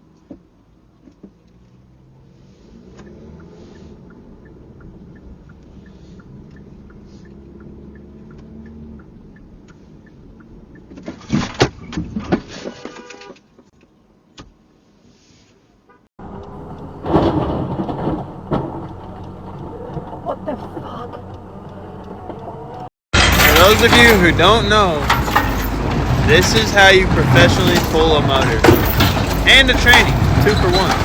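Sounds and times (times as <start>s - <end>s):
faint regular ticking: 3.4s - 10.9s
vehicle engine running: 18.2s - 31.0s
loud clattering impacts: 23.2s - 31.0s.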